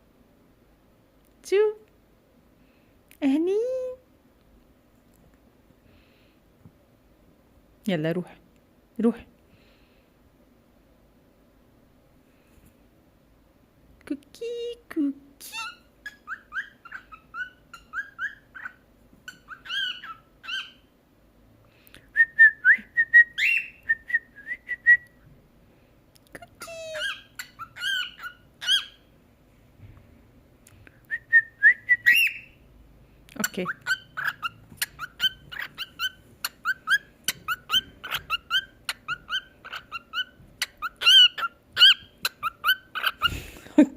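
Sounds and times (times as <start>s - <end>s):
cockatiel chirping and whistling: 16.0s - 20.8s, 23.2s - 23.9s, 26.9s - 29.0s, 31.9s - 32.6s, 33.6s - 43.3s.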